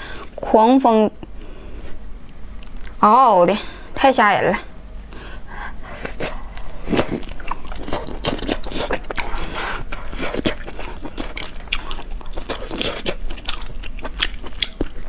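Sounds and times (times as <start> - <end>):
person chewing food: 5.9 - 15.0.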